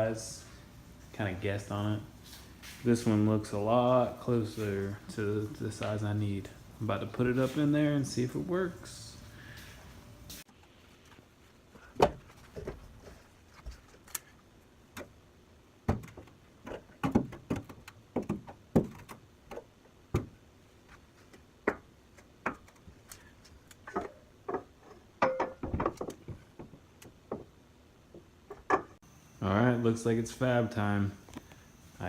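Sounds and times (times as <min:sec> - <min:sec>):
metal hoop knocking against car body: 0:24.0 - 0:26.0.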